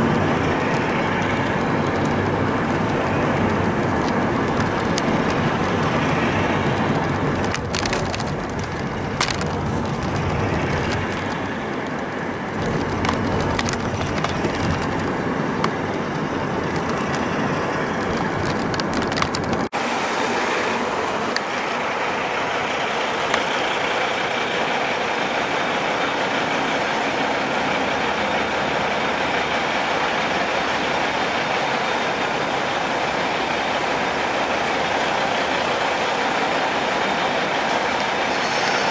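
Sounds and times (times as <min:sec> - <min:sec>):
clicks and rattles: 0:00.0 - 0:19.7
heavy truck engine and tyre rumble: 0:00.0 - 0:38.9
road noise: 0:00.0 - 0:38.9.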